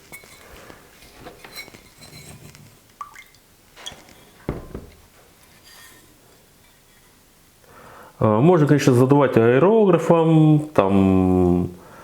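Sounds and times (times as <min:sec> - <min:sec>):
ceramic mugs clinking: 0:00.0 - 0:02.6.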